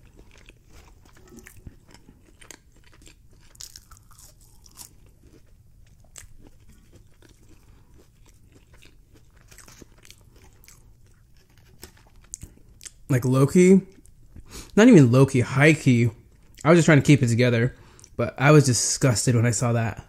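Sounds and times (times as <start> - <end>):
person chewing crunchy food: 0.0 - 13.1.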